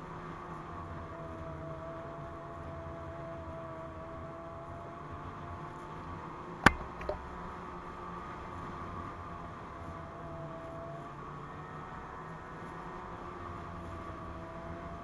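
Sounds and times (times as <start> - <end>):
sharp knock: 6.7 - 7.3.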